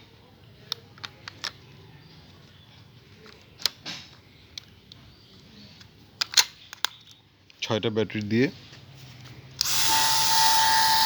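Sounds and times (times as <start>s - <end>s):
plastic clicks of batteries: 0.7s - 1.8s, 3.2s - 7.6s.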